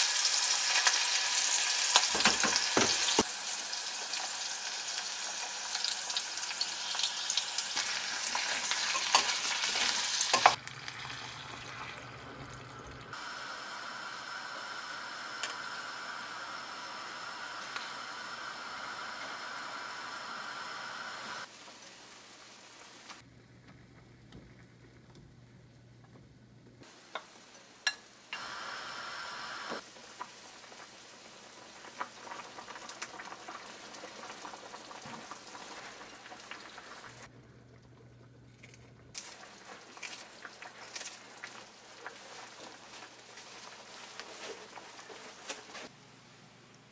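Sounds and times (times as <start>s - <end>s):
food hissing on stove: 0.0s - 10.6s, 13.1s - 23.2s, 28.3s - 31.8s.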